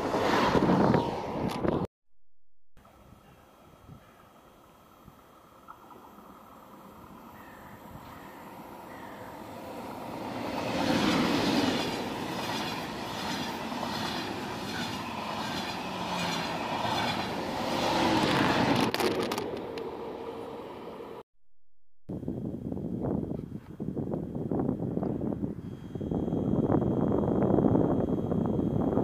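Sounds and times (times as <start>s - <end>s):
high-speed train rushing past: 0.0s - 1.9s, 5.6s - 21.2s.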